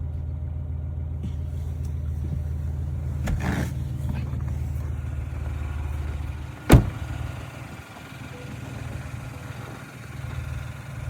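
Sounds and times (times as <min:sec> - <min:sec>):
car engine idling: 0:01.0 - 0:11.0
loud sharp thump: 0:06.7 - 0:07.2.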